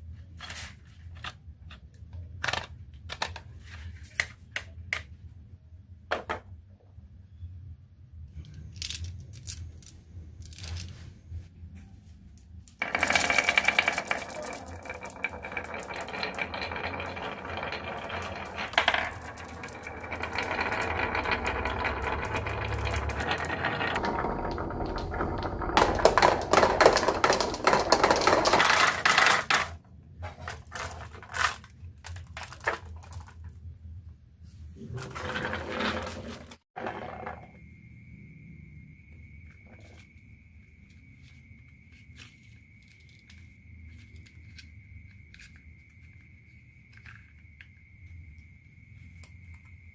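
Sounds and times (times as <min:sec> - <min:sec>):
marbles rolling and clacking on wood: 0:02.4 - 0:03.5, 0:08.4 - 0:11.0, 0:12.6 - 0:33.6, 0:34.9 - 0:37.7, 0:41.6 - 0:48.5.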